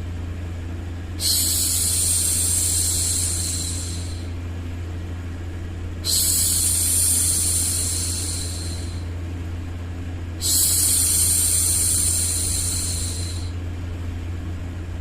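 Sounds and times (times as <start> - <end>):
steady low hum: 0.0 - 15.0
woman shushing: 1.2 - 4.3, 6.0 - 9.1, 10.4 - 13.5.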